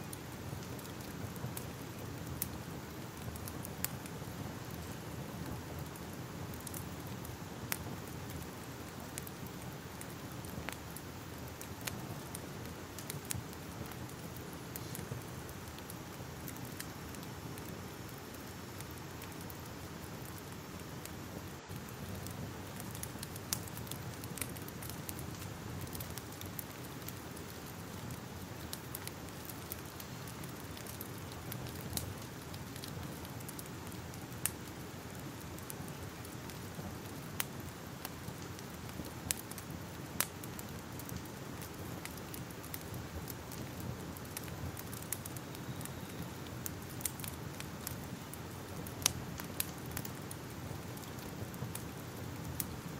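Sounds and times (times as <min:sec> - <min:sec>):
crackling fire: 0:00.0 - 0:52.9.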